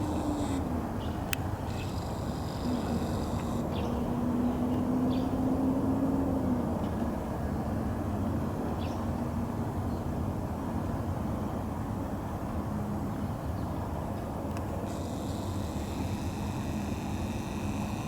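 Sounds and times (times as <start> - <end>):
faint hum: 0.0 - 4.6, 14.6 - 18.0.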